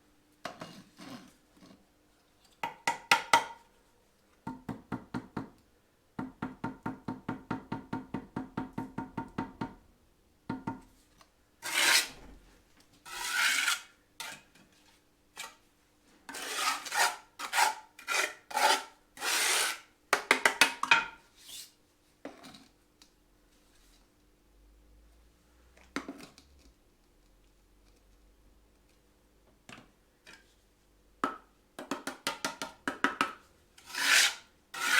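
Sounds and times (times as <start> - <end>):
trowel scraping brick and mortar: 11.6 - 12.2, 13.0 - 14.5, 16.3 - 19.8, 33.8 - 34.9.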